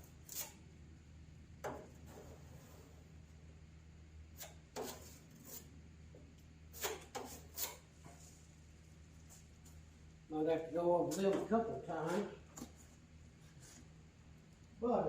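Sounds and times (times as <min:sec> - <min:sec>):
steady low hum: 0:00.0 - 0:15.0
tool scraping and tapping filler: 0:04.4 - 0:05.7, 0:06.8 - 0:08.2.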